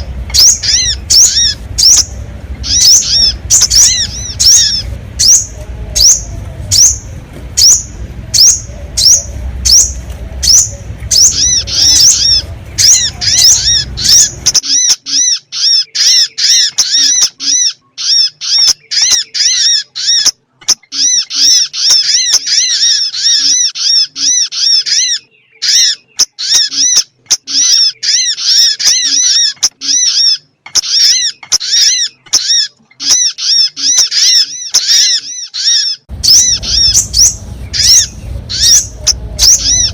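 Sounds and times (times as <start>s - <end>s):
low rumbling background: 0.0s - 14.9s, 36.1s - 39.9s
high sharp bird lure calls: 0.0s - 39.9s.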